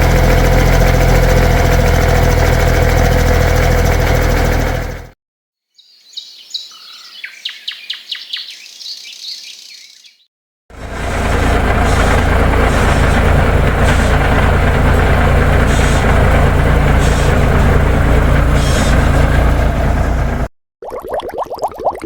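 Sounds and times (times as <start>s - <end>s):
truck diesel engine running: 0.0s - 5.2s, 10.7s - 20.5s
short air hisses: 18.6s - 19.0s.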